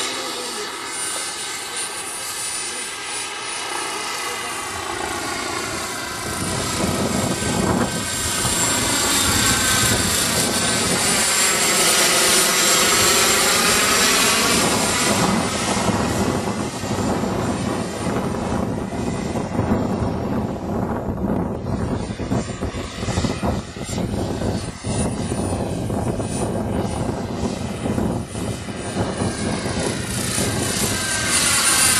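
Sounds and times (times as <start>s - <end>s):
helicopter rotor noise: 0.0s - 31.9s
model helicopter turbine whine: 0.0s - 31.9s.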